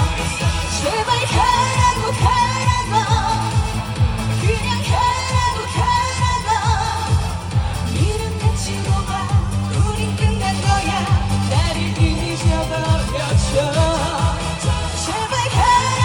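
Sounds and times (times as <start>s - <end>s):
backing track with kick drum beat: 0.0s - 16.0s
woman singing: 0.0s - 16.0s.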